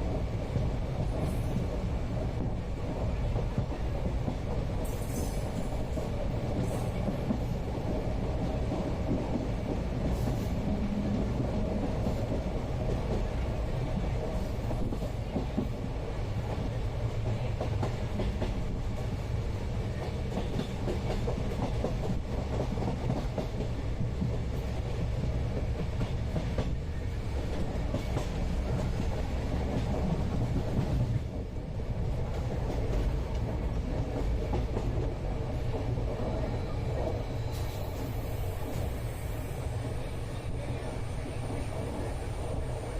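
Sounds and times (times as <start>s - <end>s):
train rumble: 0.0s - 42.9s.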